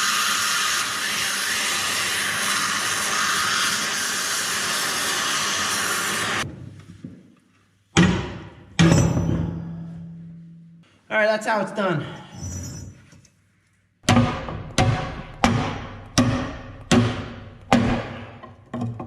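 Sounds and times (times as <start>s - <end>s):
cutting torch hissing: 0.0s - 6.4s.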